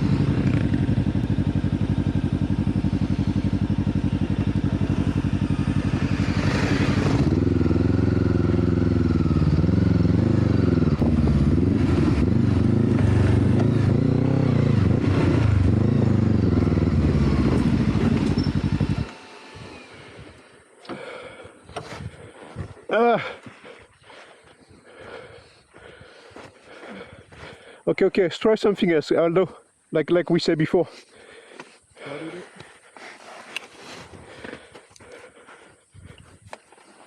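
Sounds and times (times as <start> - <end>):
motorcycle engine revving: 0.0 - 21.5.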